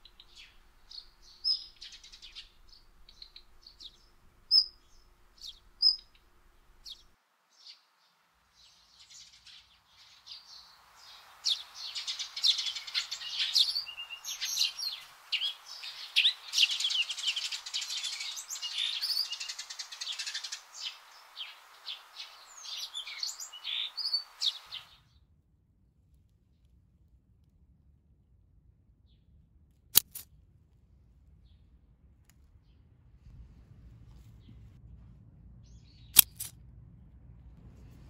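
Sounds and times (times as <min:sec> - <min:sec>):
faint steady hiss: 0:00.0 - 0:25.0
small birds chirping: 0:00.0 - 0:25.0, 0:35.6 - 0:36.5.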